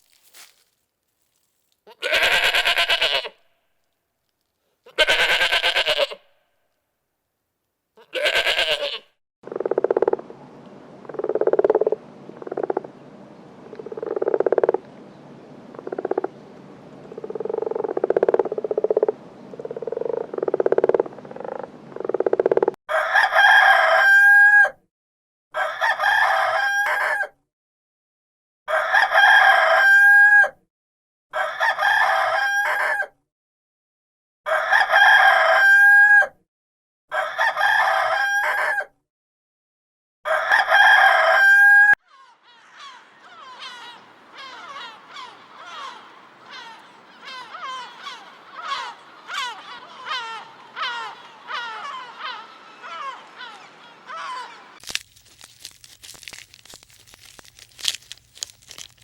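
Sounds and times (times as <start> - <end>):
rooster crowing: 22.9 - 24.8, 25.6 - 27.3, 28.7 - 30.6, 31.3 - 33.1, 34.5 - 36.4, 37.1 - 38.9, 40.3 - 54.8.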